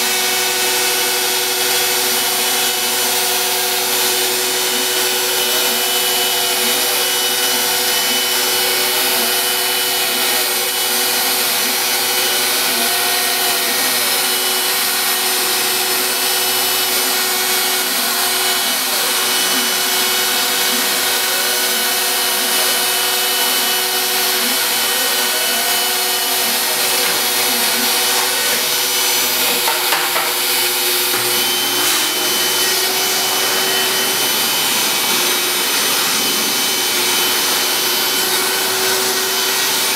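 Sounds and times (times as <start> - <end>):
router spindle cutting: 0.0 - 39.9
stepper motors whining: 0.0 - 39.9.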